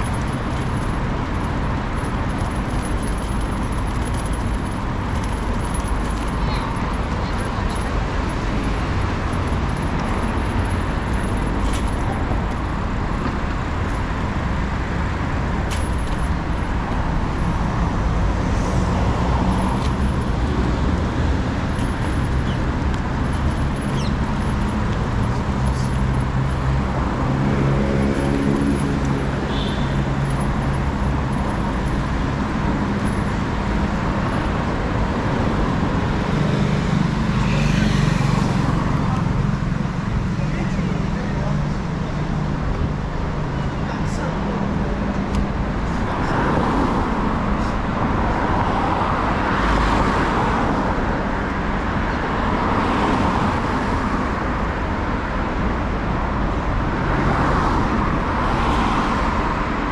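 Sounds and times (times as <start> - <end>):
passing cars: 0.0 - 59.9.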